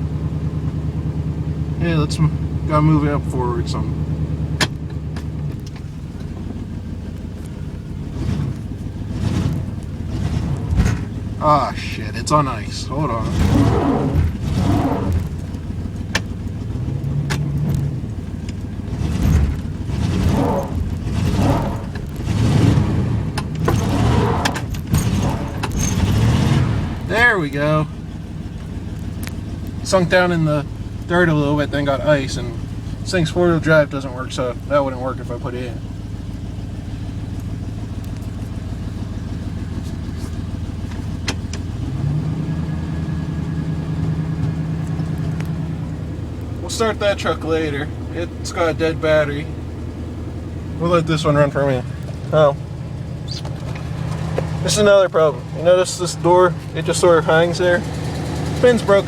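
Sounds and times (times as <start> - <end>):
truck engine revving: 0.0 - 59.0
sharp clicks: 53.2 - 54.5.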